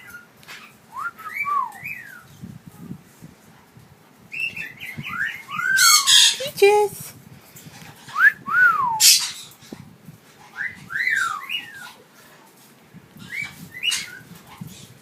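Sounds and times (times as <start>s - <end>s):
parrot calling: 4.8s - 6.8s.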